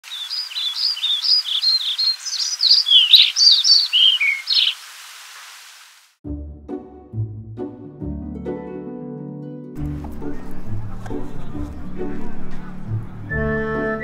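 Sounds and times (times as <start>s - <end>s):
songbird singing: 0.0s - 4.8s
plucked-string music: 6.3s - 14.0s.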